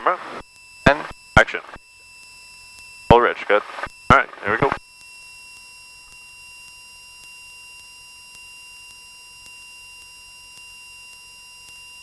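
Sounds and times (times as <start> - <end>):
steady electrical whine: 0.0 - 1.8, 3.1 - 4.8.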